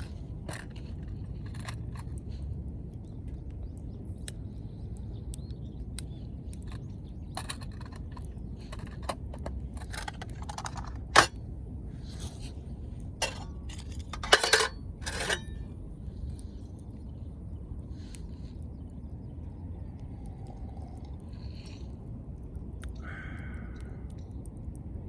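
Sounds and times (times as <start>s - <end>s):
steady low rumble: 0.0s - 25.0s
metal cookware clinking: 9.8s - 11.3s, 13.2s - 15.6s
cookware clattering: 13.2s - 15.5s.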